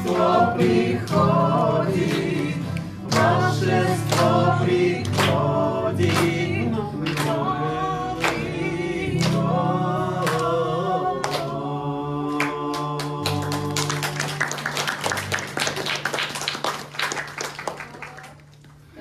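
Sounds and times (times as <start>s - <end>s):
voices singing together: 0.0s - 14.7s.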